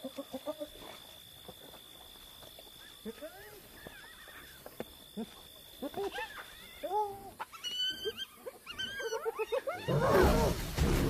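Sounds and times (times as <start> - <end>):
hyenas calling: 2.8 - 10.7.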